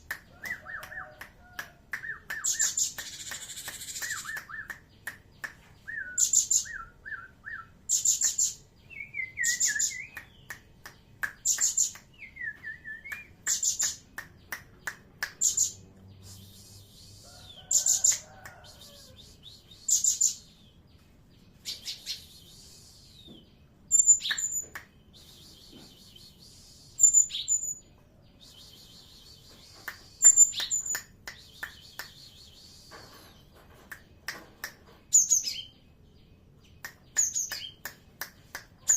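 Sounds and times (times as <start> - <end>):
bird high chirps: 2.1 - 4.7, 5.8 - 10.5, 15.4 - 20.8, 21.4 - 33.5, 35.1 - 35.8.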